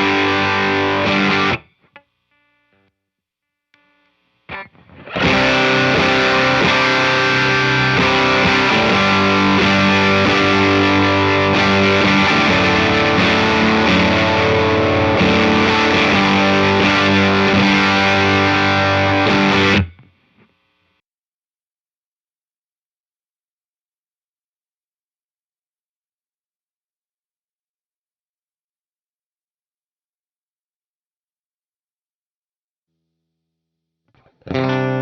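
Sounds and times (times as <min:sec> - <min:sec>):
distorted electric guitar riff: 0:00.0 - 0:02.9, 0:03.8 - 0:20.9, 0:34.2 - 0:35.0.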